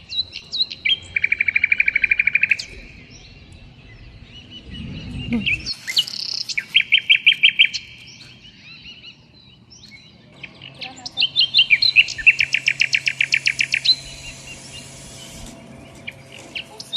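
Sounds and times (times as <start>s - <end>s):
songbird chirping and trilling: 0.0s - 16.9s.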